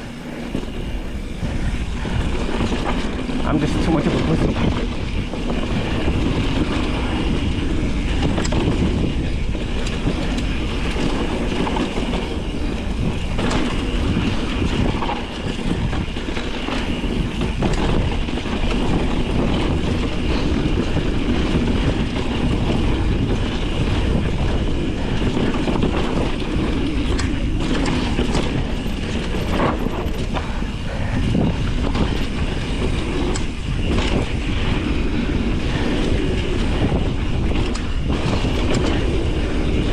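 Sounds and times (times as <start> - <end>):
bike clicks and rattles: 0.0 - 39.9
bike tyre rumble on dirt: 0.0 - 39.9
wind on microphone: 0.0 - 39.9.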